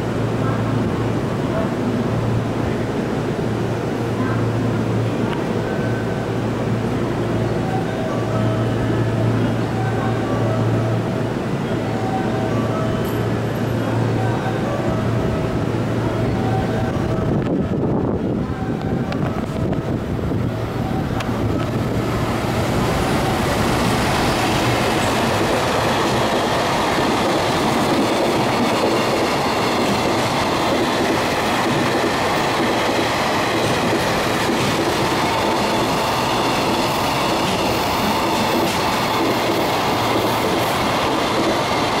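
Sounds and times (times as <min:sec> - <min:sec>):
train wheels rolling on rails: 0:16.6 - 0:42.0
clickety-clack over rail joints: 0:36.6 - 0:42.0.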